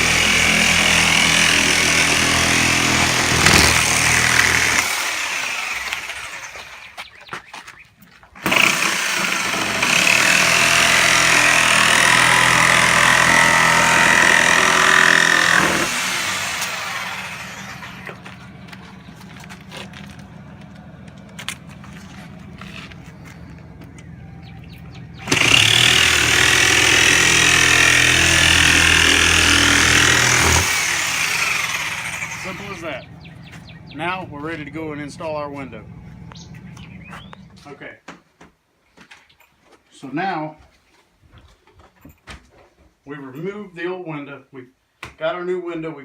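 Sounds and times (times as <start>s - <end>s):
reciprocating saw cutting: 0.0s - 7.0s, 8.4s - 18.4s, 25.2s - 33.1s.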